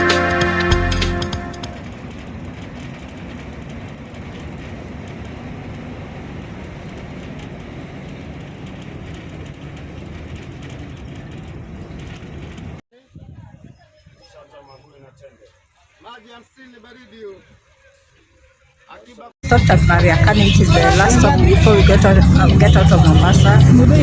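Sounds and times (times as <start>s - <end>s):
bus engine and road noise: 0.0s - 12.8s, 19.4s - 24.0s
faint cabin rattles: 1.8s - 12.8s.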